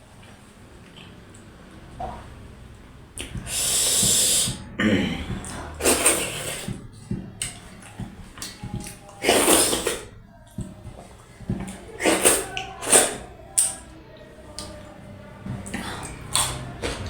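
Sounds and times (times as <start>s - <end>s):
mouth and breath eating noises: 3.2s - 13.9s, 14.5s - 17.0s
mouth clicks: 11.6s - 13.9s.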